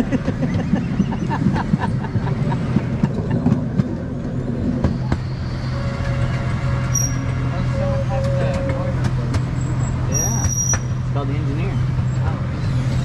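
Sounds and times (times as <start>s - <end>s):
wheels clacking on rails: 0.0s - 12.5s
train low hum: 0.0s - 13.0s.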